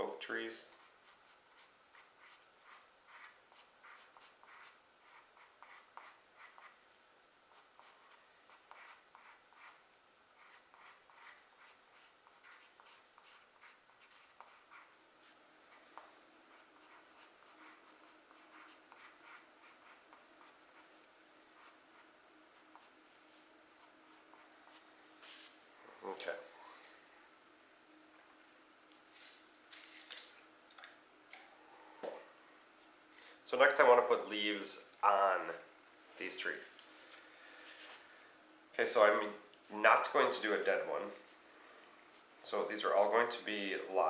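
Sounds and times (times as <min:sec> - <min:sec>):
pencil scratching on paper: 0:00.7 - 0:06.8, 0:07.5 - 0:09.8, 0:10.4 - 0:14.9, 0:16.5 - 0:20.9, 0:21.6 - 0:22.9, 0:23.7 - 0:24.8.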